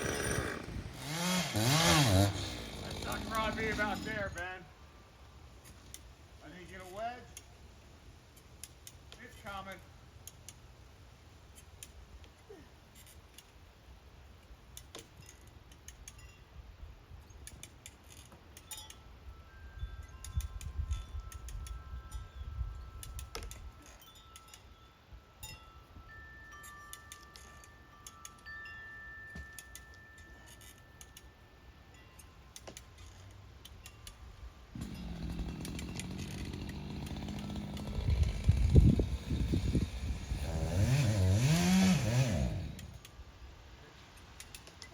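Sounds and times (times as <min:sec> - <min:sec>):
chainsaw idling: 0:00.0 - 0:04.4, 0:34.8 - 0:43.0.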